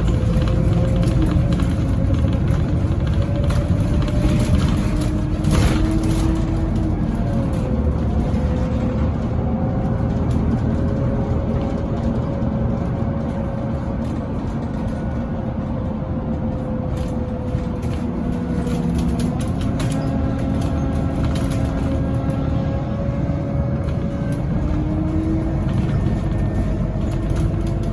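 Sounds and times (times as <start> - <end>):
bus engine running: 0.0 - 27.9
light rattles and clicks: 0.0 - 27.9.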